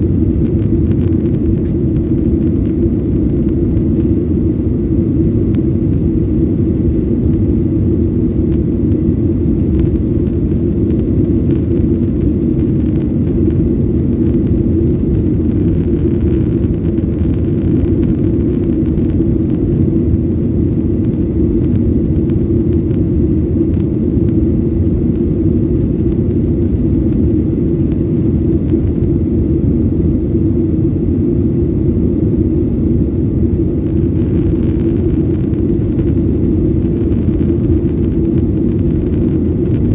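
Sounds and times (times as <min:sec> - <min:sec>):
jet engines and airflow in cabin: 0:00.0 - 0:39.9.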